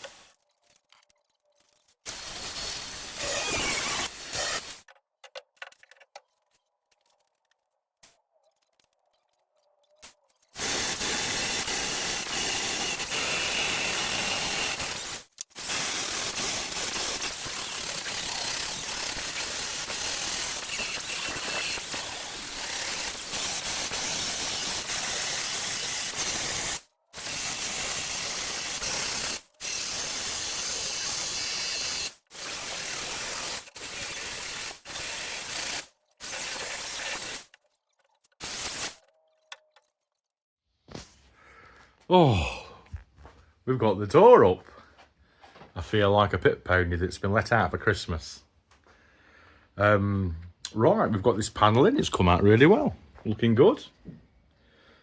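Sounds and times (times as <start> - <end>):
welder crackling: 1.7 - 5.0, 5.6 - 37.6, 38.2 - 39.1.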